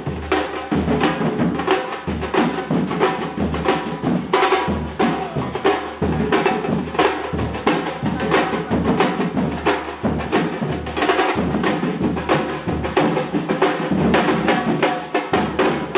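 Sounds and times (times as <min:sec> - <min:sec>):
children playing drums: 0:00.0 - 0:15.9
deep bass drum strokes: 0:02.2 - 0:13.0.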